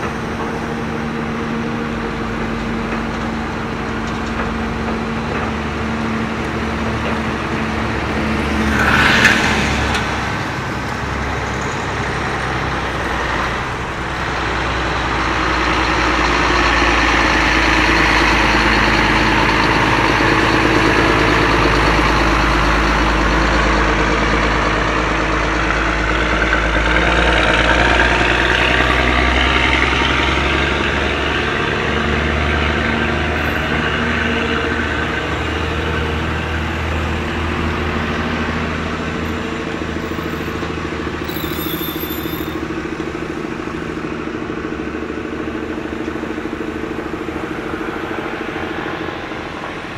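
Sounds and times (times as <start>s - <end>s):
heavy truck engines running: 0.0s - 49.9s.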